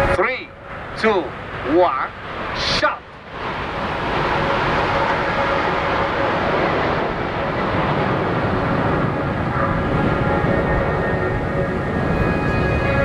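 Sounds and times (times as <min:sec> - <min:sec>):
jet engines roaring past: 0:00.0 - 0:13.0.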